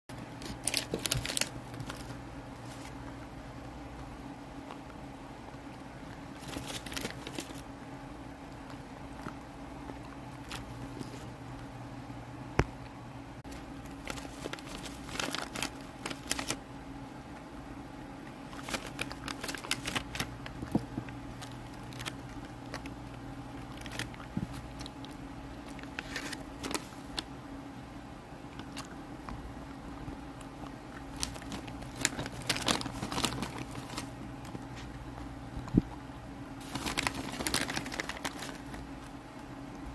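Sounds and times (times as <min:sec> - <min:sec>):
steady low hum: 0:00.1 - 0:39.9
person chewing and crunching food: 0:18.3 - 0:27.3, 0:28.4 - 0:36.0.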